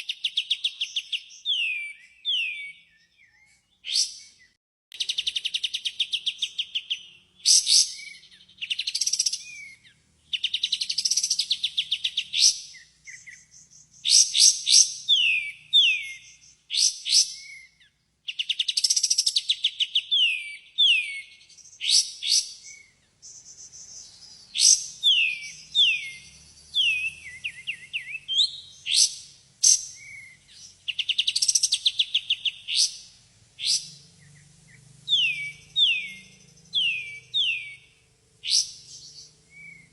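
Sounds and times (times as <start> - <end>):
bird singing fast trills: 0.0 - 39.9.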